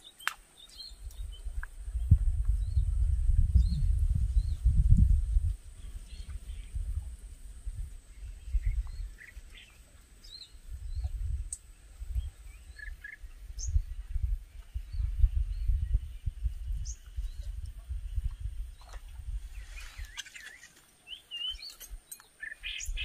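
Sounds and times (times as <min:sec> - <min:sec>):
birds chirping: 0:00.0 - 0:02.9, 0:07.8 - 0:23.0.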